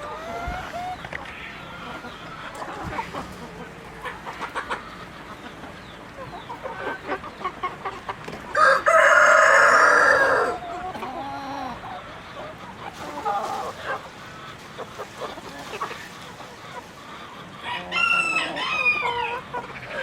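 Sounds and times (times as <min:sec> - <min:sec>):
chickens clucking: 0:00.0 - 0:20.0
rooster crowing: 0:08.5 - 0:10.6, 0:17.6 - 0:19.3.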